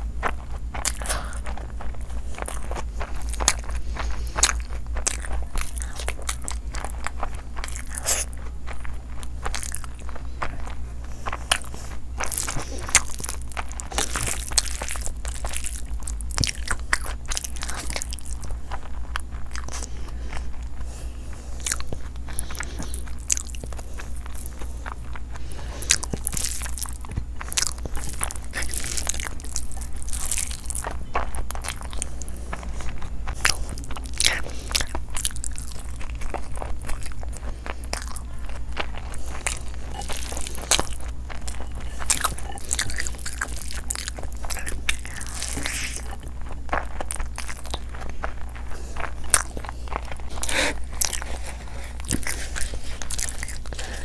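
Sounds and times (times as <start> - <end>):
steady low hum: 0.0 - 54.0
wet chewing and smacking: 0.0 - 54.0.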